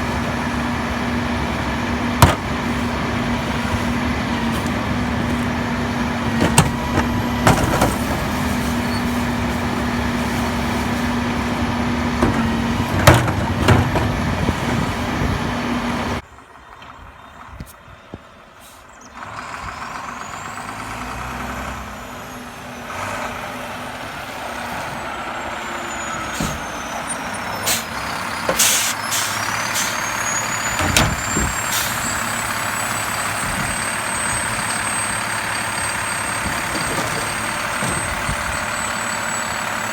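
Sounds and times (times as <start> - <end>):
garbage truck engine humming: 0.0 - 39.9
short air hisses: 28.6 - 30.0.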